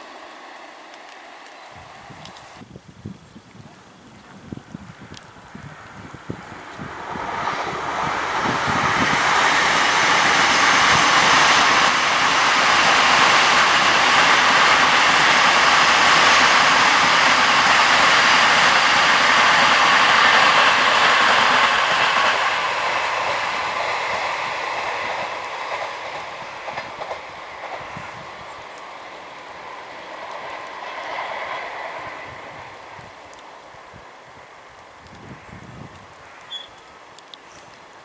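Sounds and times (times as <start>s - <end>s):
train rushing past: 0.0s - 2.6s, 5.4s - 34.7s
faint rail clicks: 0.9s - 2.6s, 21.8s - 29.0s, 29.9s - 32.1s, 35.9s - 38.0s.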